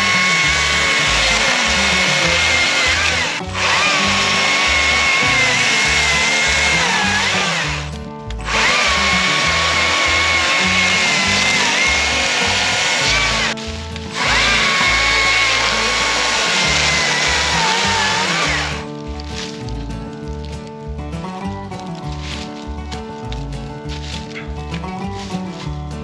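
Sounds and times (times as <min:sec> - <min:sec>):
small electric motor whining: 0:00.0 - 0:18.9
music with bass beat: 0:00.0 - 0:26.0.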